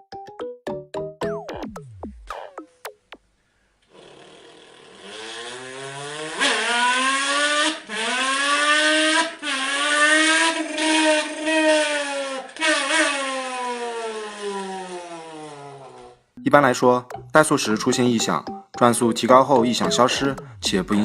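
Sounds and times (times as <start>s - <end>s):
car engine revving: 5.0s - 11.8s.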